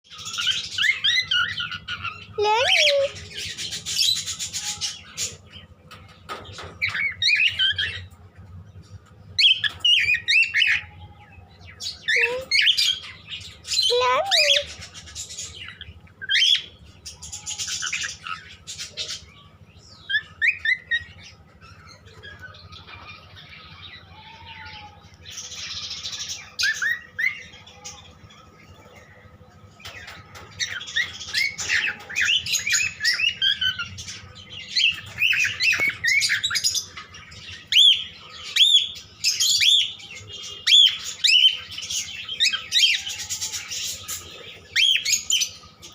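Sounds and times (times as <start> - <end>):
cockatiels chirping and whistling: 0.1 - 5.4, 6.3 - 8.1, 9.4 - 10.8, 20.0 - 23.2, 26.2 - 27.4, 30.6 - 45.6.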